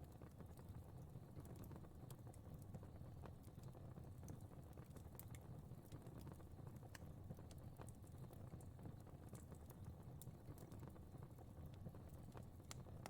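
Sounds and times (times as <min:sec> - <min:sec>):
fire crackling and popping: 0:00.1 - 0:13.0.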